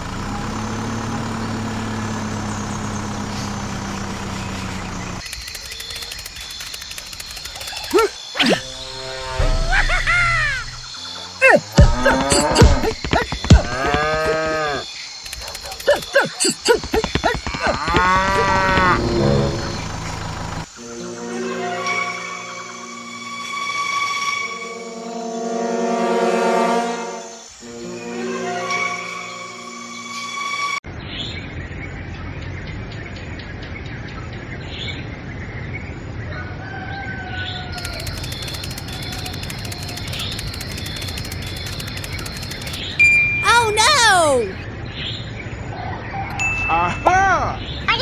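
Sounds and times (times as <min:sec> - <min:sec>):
birds chirping: 0:01.3 - 0:08.9, 0:10.1 - 0:20.7, 0:37.6 - 0:45.6
fast high ticking: 0:37.8 - 0:43.0.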